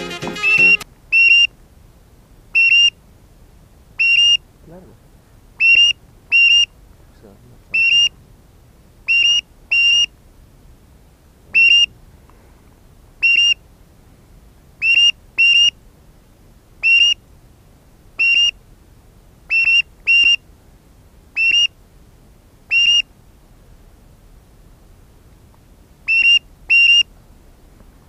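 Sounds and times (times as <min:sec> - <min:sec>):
high whistle blasts: 0:00.0 - 0:01.5.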